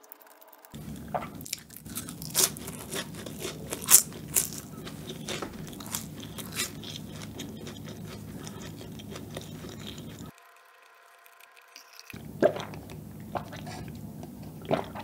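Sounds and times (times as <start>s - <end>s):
chewing crisp pastry crust: 0.2s - 10.4s.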